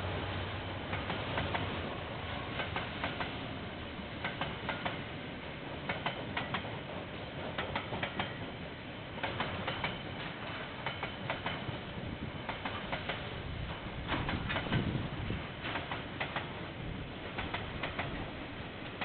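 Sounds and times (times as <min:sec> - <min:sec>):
freight train rumbling past: 0:00.0 - 0:19.0
wheels clicking over rail joints: 0:02.5 - 0:03.4, 0:04.2 - 0:05.1, 0:05.8 - 0:08.6, 0:09.2 - 0:19.0.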